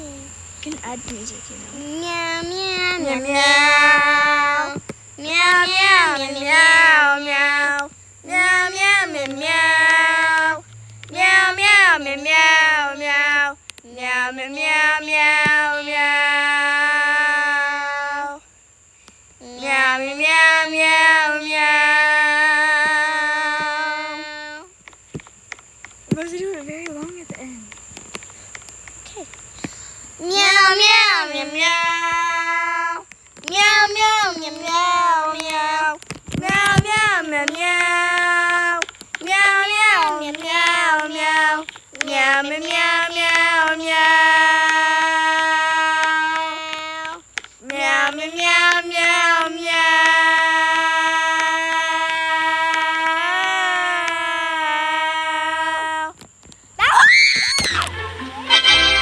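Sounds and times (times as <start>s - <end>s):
voices singing meow: 1.8s - 18.4s, 19.4s - 24.8s, 30.2s - 56.2s, 56.8s - 59.0s.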